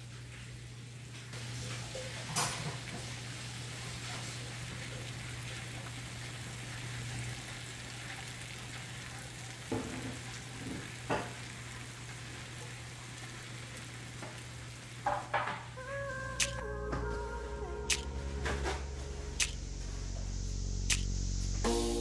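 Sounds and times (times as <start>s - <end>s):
rain hiss: 0.0s - 22.0s
low hum: 15.8s - 22.0s.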